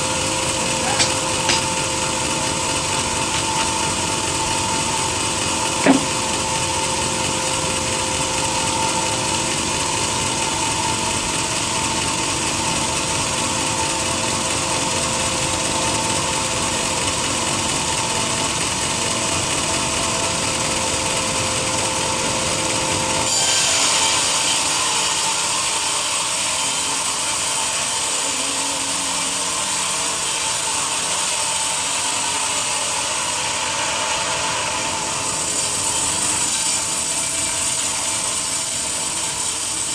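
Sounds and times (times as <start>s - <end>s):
continuous hum: 0.0s - 14.3s, 26.4s - 30.7s
saw cutting through log: 0.0s - 39.9s.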